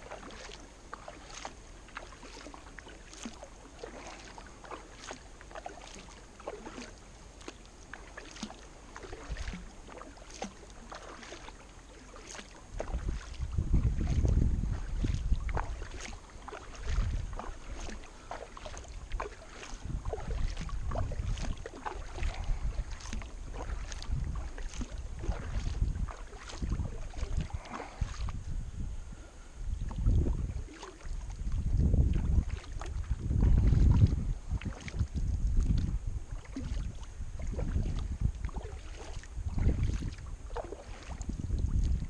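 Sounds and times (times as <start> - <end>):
kayak paddle splashing: 0.0 - 28.5, 29.2 - 42.0
wind buffeting microphone: 12.7 - 42.0.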